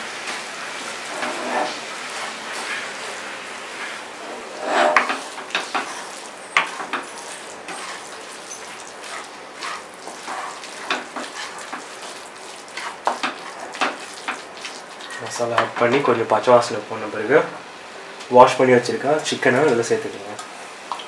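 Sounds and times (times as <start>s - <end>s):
masala sizzling in a pan: 0.0s - 15.8s
wooden spatula scraping a pan: 0.8s - 15.2s.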